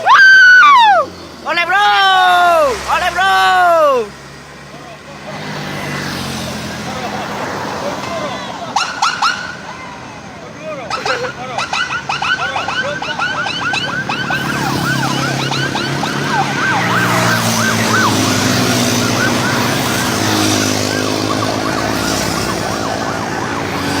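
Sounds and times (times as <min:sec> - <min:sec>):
emergency siren yelping: 0:00.0 - 0:01.1, 0:08.8 - 0:10.1, 0:10.9 - 0:24.0
vehicle engine running: 0:12.2 - 0:24.0.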